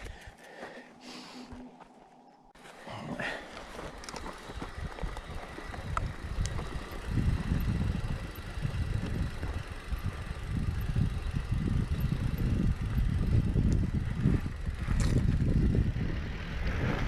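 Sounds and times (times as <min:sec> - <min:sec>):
bike tyres rumbling on dirt: 0:02.6 - 0:17.0
wind buffeting microphone: 0:03.8 - 0:17.0.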